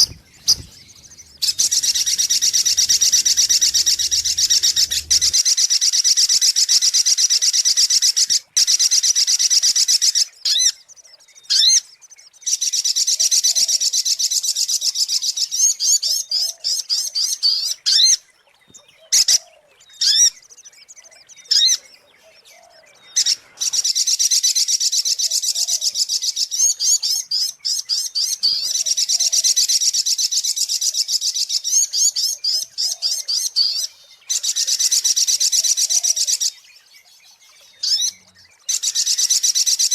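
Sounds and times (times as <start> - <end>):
bird chirping high-pitched: 0.0 - 5.4.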